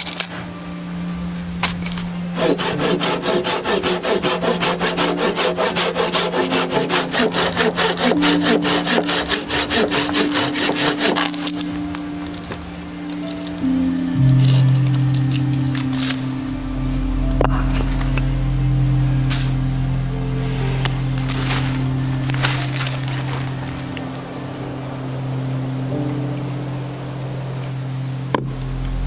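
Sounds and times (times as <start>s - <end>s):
hand saw cutting wood: 2.4s - 11.8s.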